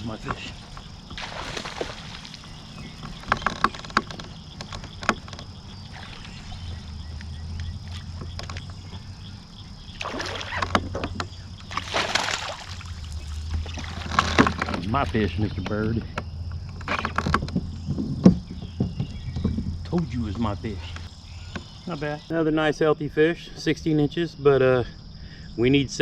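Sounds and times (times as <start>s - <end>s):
water splashing and sloshing: 0.0s - 15.8s
gear knocking on kayak hull: 1.8s - 6.0s, 13.5s - 21.8s.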